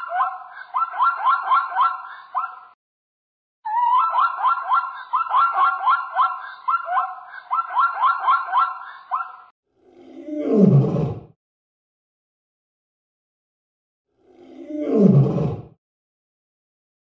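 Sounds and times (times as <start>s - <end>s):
zebra yelping barks: 0.0s - 2.7s, 3.8s - 9.5s.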